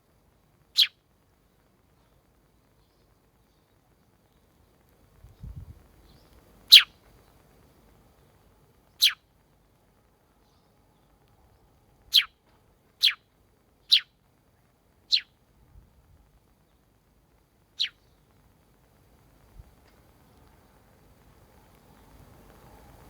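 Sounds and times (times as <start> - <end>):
sparrow chirping: 0.8 - 1.0, 5.4 - 6.9, 8.9 - 9.2, 12.1 - 12.4, 13.0 - 13.2, 13.8 - 14.1, 15.1 - 15.3, 17.8 - 18.2.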